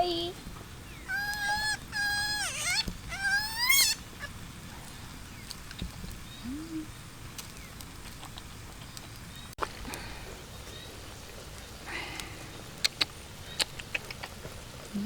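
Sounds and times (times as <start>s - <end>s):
high wavering animal calls: 0.8s - 4.4s
faint low animal call: 1.0s - 4.4s, 6.4s - 7.0s.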